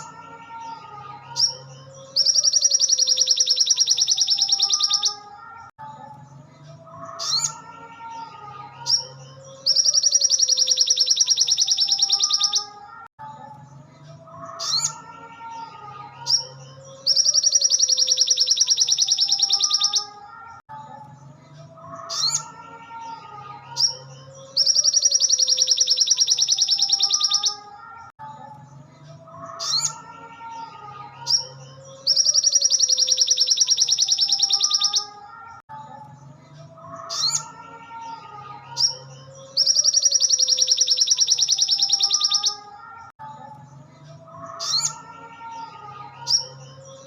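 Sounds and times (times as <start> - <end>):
bird chirps and warbles: 0.0 - 47.0
bird rapid high trill: 1.4 - 5.2, 9.7 - 12.7, 17.1 - 20.2, 24.6 - 27.7, 31.3 - 35.2, 39.6 - 42.7.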